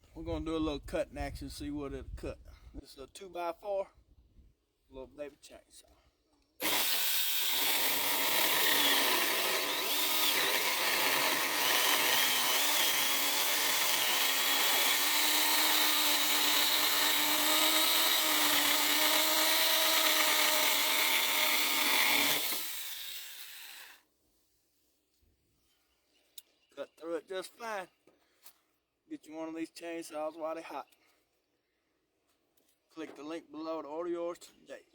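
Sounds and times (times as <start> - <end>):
electric chainsaw cutting wood: 6.6 - 24.0.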